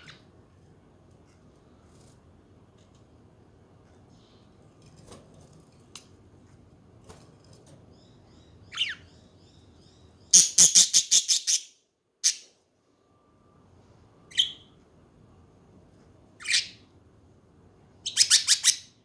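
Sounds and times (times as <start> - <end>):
budgerigars chirping: 8.0 - 12.4, 14.3 - 14.7, 16.4 - 16.8, 18.0 - 19.0.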